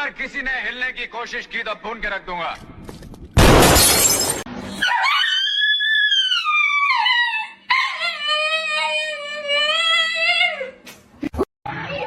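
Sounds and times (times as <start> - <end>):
dog howling: 4.8 - 10.7.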